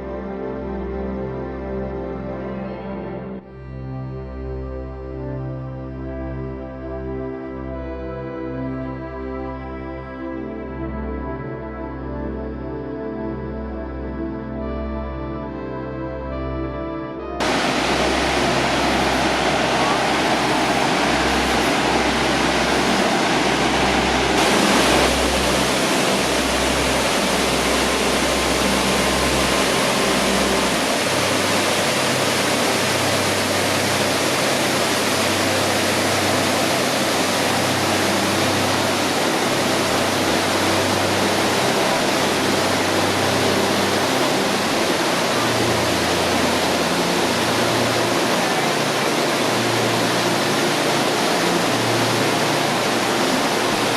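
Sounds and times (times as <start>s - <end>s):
low shifting notes: 16.3s - 53.9s
waterfall roaring: 17.4s - 53.9s.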